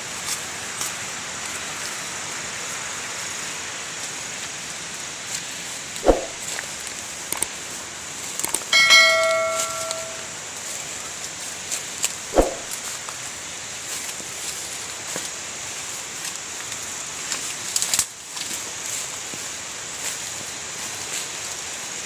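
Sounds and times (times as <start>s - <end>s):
steady hiss: 0.0s - 22.0s
metal object ringing: 8.8s - 10.4s.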